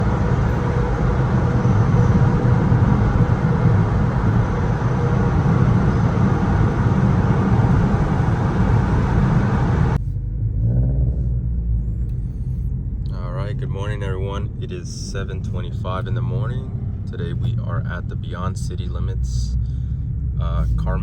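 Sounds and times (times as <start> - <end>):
vehicle rumble: 0.0 - 21.0.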